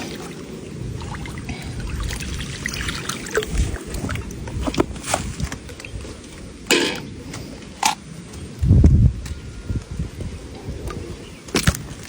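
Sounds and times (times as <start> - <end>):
water splashing and sloshing: 0.0 - 8.0.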